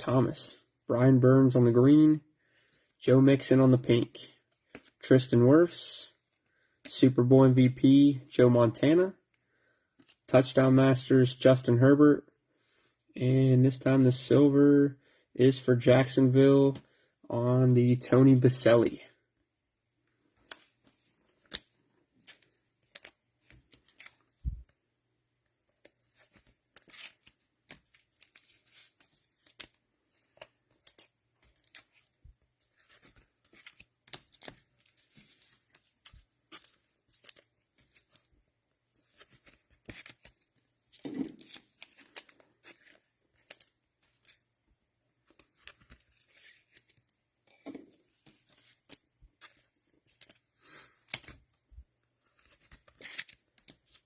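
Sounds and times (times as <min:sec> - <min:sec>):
cards being handled: 0:02.7 - 0:05.4, 0:09.9 - 0:10.3, 0:20.1 - 0:24.8, 0:25.4 - 0:54.0.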